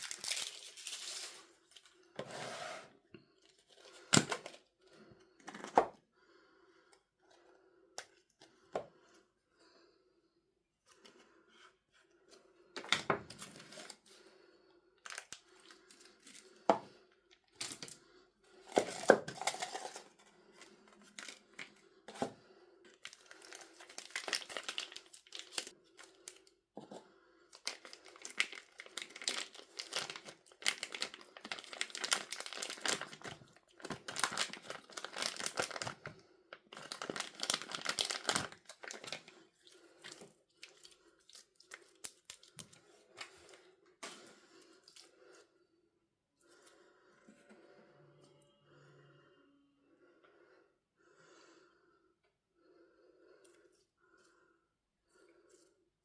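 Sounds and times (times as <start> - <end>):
packaging tearing and crinkling: 0.0 - 1.4, 23.1 - 25.7, 27.6 - 36.0, 36.7 - 39.2.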